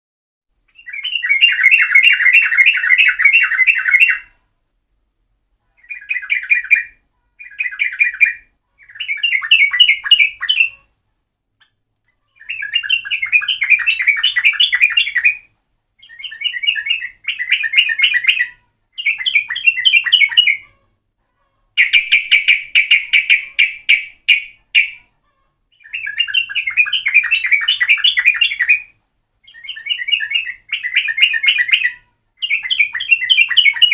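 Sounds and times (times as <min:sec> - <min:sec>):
bulbul chattering song: 0:00.7 - 0:04.4, 0:05.8 - 0:11.0, 0:12.3 - 0:20.8, 0:21.8 - 0:25.1, 0:25.7 - 0:33.9.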